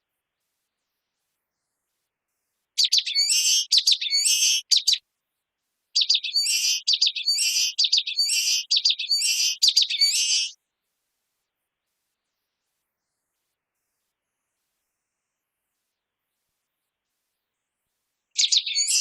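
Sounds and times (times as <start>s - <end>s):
small bird singing: 2.8s - 5.0s, 5.9s - 10.6s, 18.3s - 19.0s.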